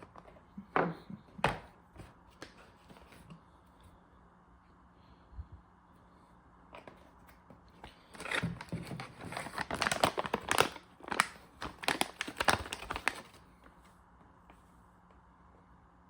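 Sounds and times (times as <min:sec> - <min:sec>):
packaging crinkling: 0:07.8 - 0:13.4.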